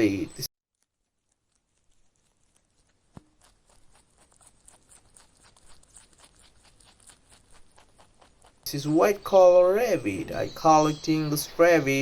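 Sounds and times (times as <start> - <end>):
soft ticks and rustles: 0.8 - 9.0.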